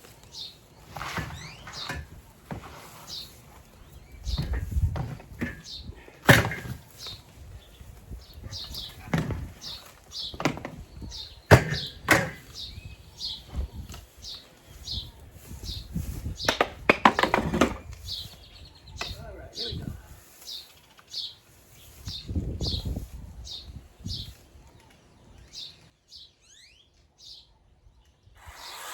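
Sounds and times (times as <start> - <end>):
bird chirping: 0.0 - 28.8
wood knocking and cracking: 4.2 - 12.6, 16.4 - 18.1.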